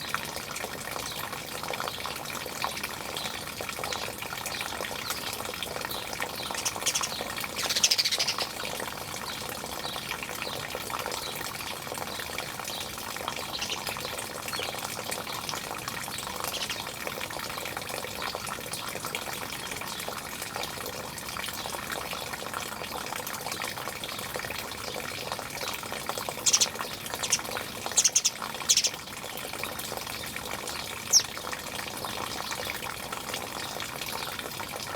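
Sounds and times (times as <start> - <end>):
rushing water: 0.0 - 34.9
birds chirping and calling: 5.1 - 8.9, 12.8 - 14.8, 16.1 - 17.1, 26.2 - 29.0, 30.8 - 31.4.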